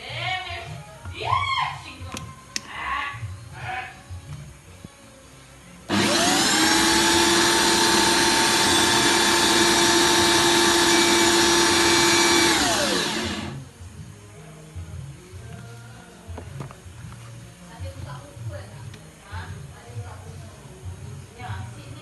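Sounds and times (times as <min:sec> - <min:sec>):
electric drill motor whine: 0:05.9 - 0:13.6.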